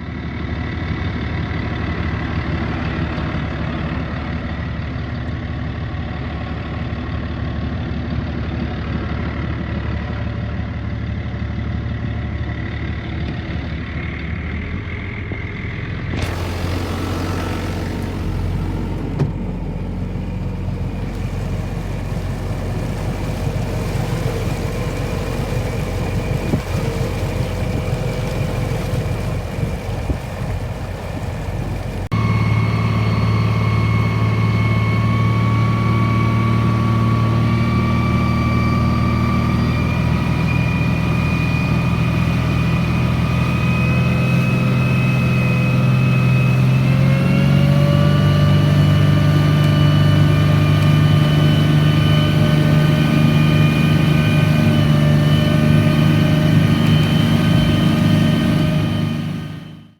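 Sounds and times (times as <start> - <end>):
boat engine running: 0.0 - 59.9
wide hiss of wind or water: 16.2 - 32.1.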